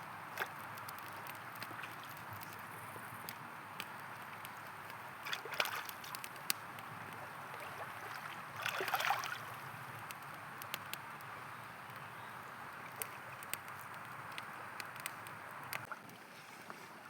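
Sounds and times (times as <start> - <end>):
campfire crackling: 0.0 - 17.0
river flowing: 3.5 - 10.3
water sloshing: 5.2 - 6.3, 7.0 - 9.6.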